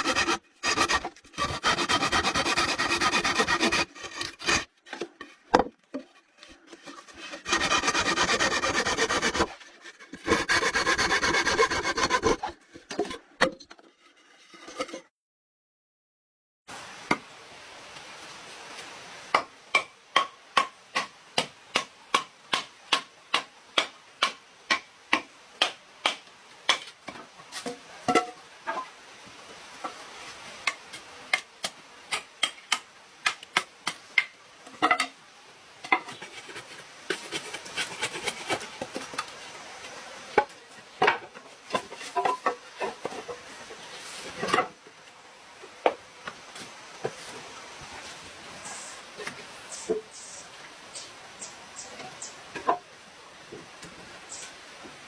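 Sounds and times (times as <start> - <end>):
steady hiss: 16.7 - 55.0.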